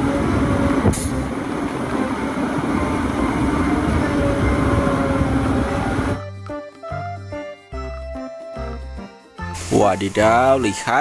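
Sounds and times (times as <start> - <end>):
diesel engine under load: 0.0 - 6.3.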